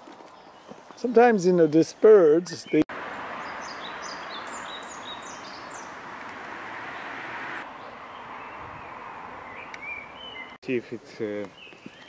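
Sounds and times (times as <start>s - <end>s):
songbirds chirping: 0.0s - 12.0s
steady outdoor hiss: 0.0s - 12.0s.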